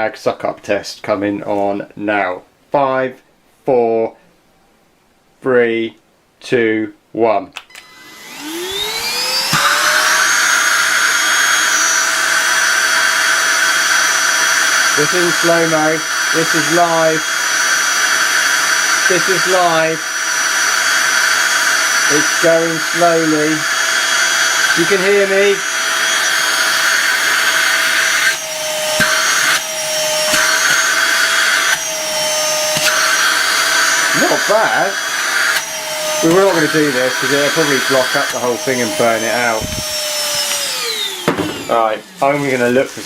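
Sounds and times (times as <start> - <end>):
handheld vacuum cleaner motor whine: 7.7 - 43.0
knock: 41.2 - 41.6.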